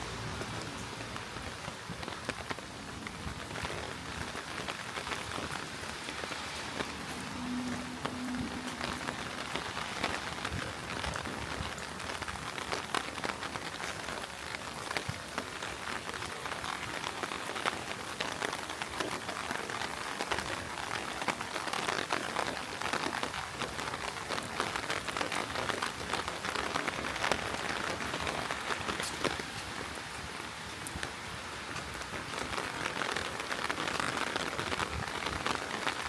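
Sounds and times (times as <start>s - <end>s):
heavy rain falling: 0.0s - 36.0s.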